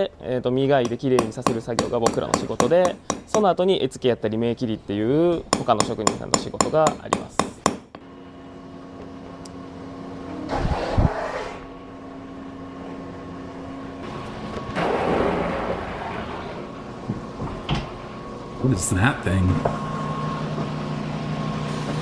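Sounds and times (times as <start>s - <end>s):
grinding wheel humming: 19.6s - 22.0s.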